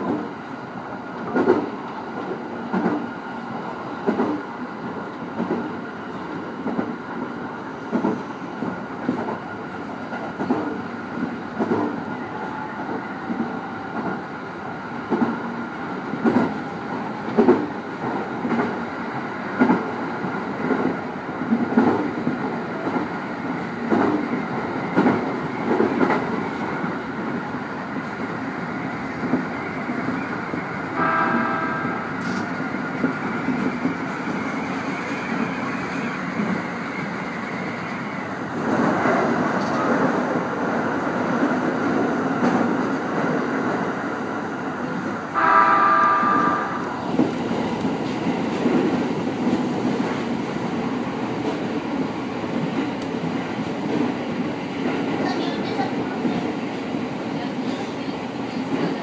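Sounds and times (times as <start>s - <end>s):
electric train running: 27.7s - 40.4s
short train horn blast: 31.0s - 32.1s, 45.3s - 46.9s.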